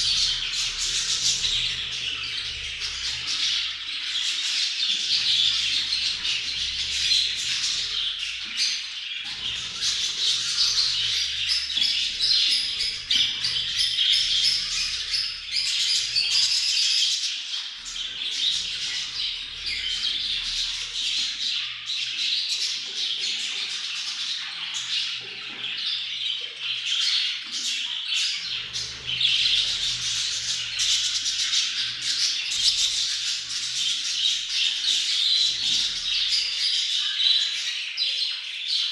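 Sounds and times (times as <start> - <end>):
budgerigars chattering: 0.0 - 37.7.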